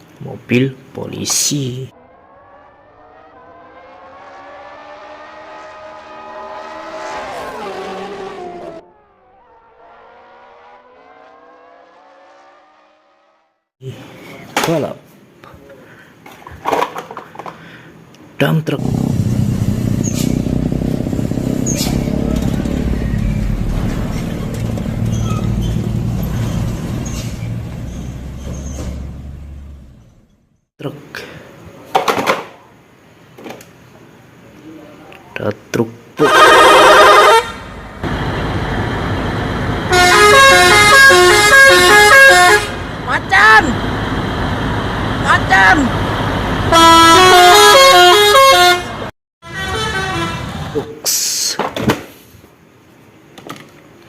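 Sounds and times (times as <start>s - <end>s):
quieter engine revving: 1.9s - 13.6s, 18.8s - 30.4s, 36.2s - 47.2s
racing car engine passing by: 1.9s - 13.7s, 18.8s - 30.1s.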